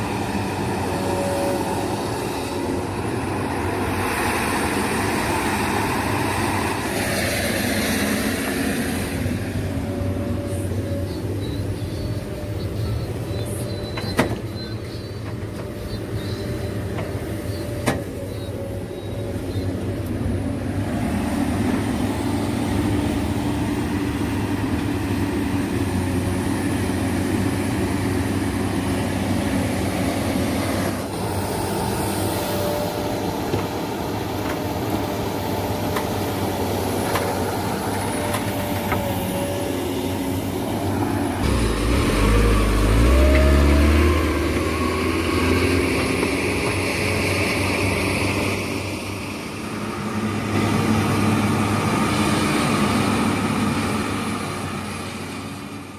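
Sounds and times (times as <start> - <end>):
diesel engine running: 0.0 - 55.9
deeper rumble: 41.3 - 46.0.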